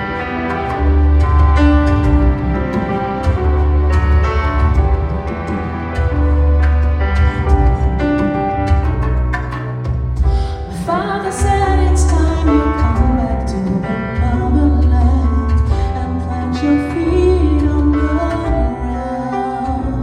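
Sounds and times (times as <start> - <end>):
instrumental accompaniment with bass: 0.0 - 20.0
woman singing soul ballad: 10.4 - 20.0.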